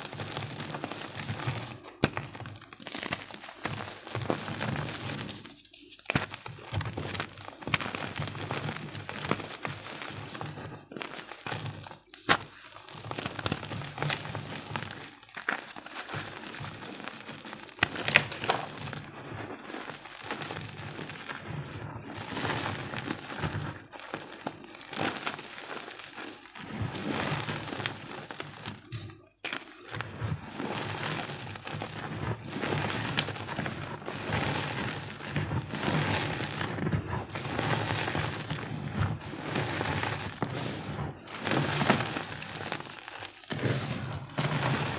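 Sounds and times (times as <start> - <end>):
chalk being crushed: 39.5 - 44.9.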